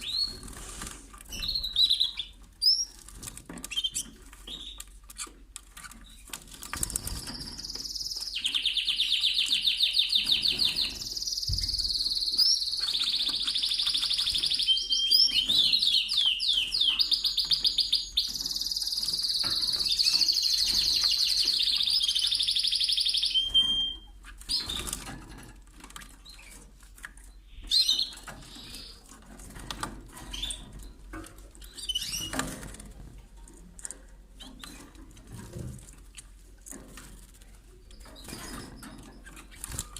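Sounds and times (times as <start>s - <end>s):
canary singing trills: 1.3s - 3.0s, 3.6s - 25.0s, 27.2s - 29.1s, 31.6s - 32.6s
bird chirps: 6.7s - 25.0s.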